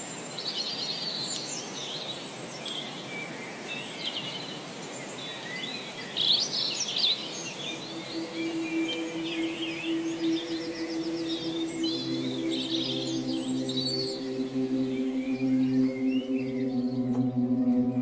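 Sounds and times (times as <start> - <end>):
small birds chirping: 0.0 - 17.2
background hiss: 0.0 - 18.0
low sustained tone: 7.6 - 18.0.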